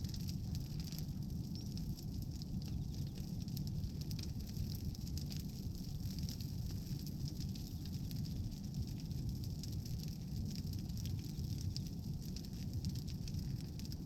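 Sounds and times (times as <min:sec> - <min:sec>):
bonfire crackling and popping: 0:00.0 - 0:14.0.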